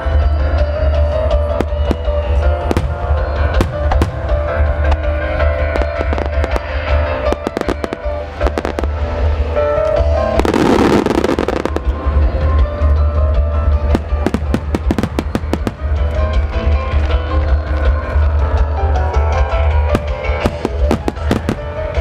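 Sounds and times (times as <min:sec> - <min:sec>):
music: 0:00.0 - 0:22.0
fireworks bangs: 0:01.5 - 0:09.5, 0:10.2 - 0:12.2, 0:13.8 - 0:17.1, 0:19.9 - 0:22.0.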